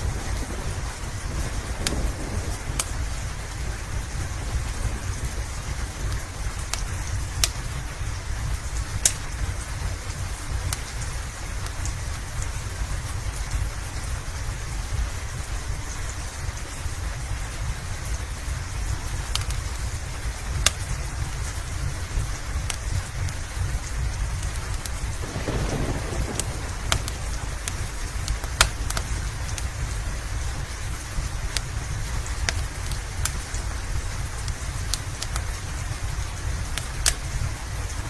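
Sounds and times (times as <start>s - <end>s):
fireplace popping and crackling: 0.0s - 13.5s, 24.4s - 37.4s
steady rain: 0.0s - 38.0s
low rumble: 25.2s - 30.7s.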